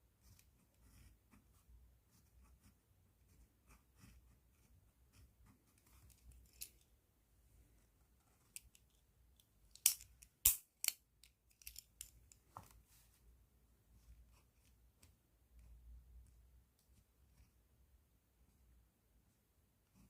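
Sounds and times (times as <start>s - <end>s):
pen scratching on paper: 0.2s - 6.1s.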